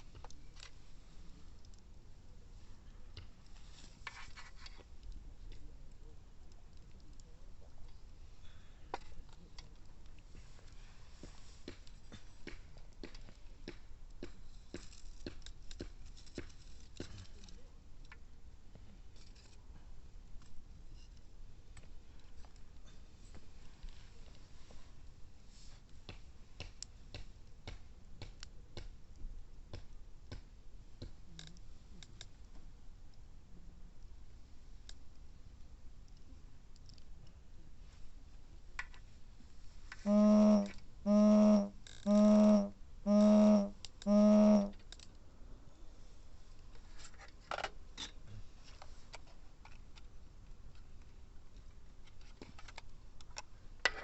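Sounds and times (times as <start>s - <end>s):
loud pitched tones: 40.1s - 44.7s.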